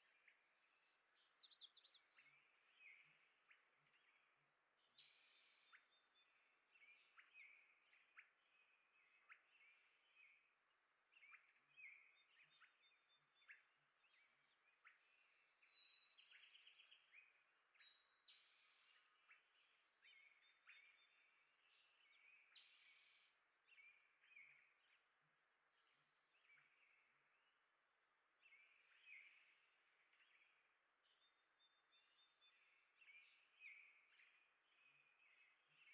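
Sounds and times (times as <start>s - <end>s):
small birds chirping: 0.0s - 35.9s.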